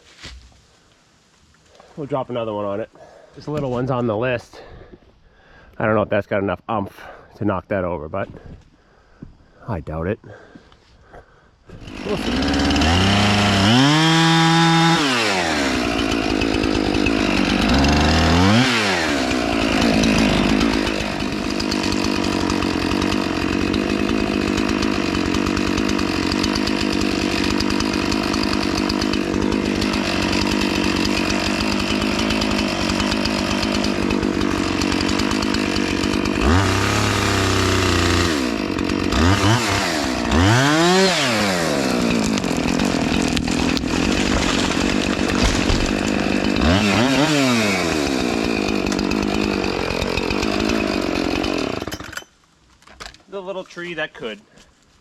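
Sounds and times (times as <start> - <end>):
chainsaw running at high revs: 11.7 - 52.2.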